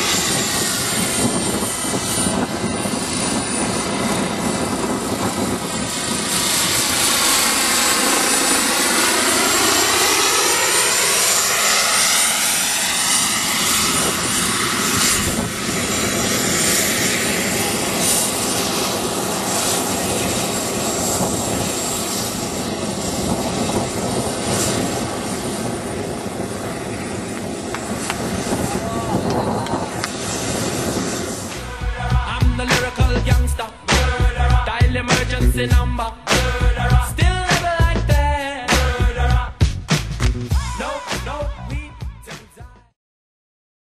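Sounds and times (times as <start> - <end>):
model helicopter turbine whine: 0.0 - 34.8
helicopter rotor noise: 0.0 - 42.2.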